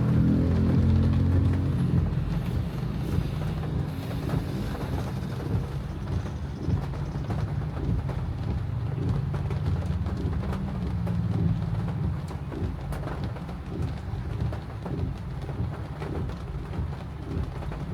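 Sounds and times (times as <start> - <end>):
car engine drone: 0.0 - 13.8
rain and wet road noise: 0.0 - 17.9
raindrops ticking on car: 0.0 - 17.9.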